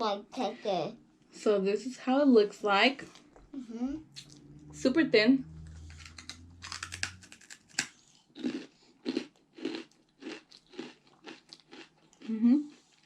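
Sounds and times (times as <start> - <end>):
crunchy chewing: 5.6 - 13.0.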